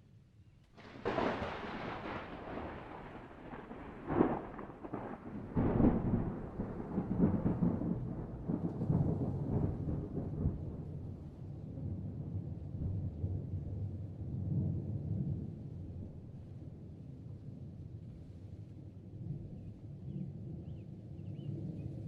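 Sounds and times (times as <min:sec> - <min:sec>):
thunder cracks and rumble: 0:00.8 - 0:16.4.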